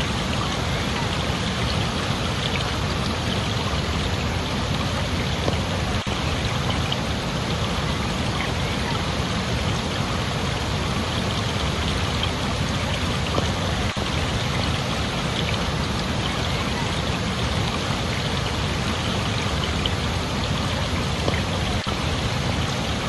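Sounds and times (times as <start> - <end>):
running water splashing: 0.0 - 23.0.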